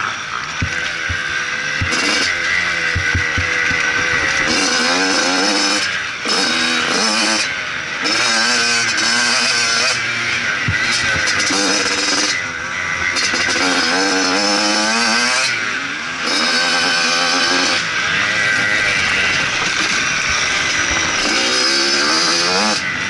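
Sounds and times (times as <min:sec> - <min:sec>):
motocross engine revving: 0:00.0 - 0:23.0.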